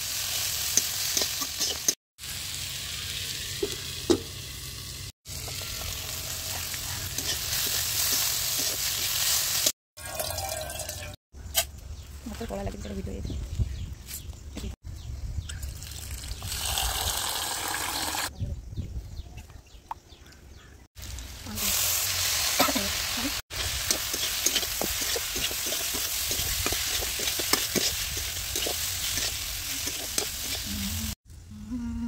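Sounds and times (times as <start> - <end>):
hot oil sizzling: 0.0 - 11.2, 15.8 - 18.3, 21.0 - 31.2
metal spatula scraping and clicking: 0.8 - 2.0, 7.1 - 8.8, 23.6 - 30.7.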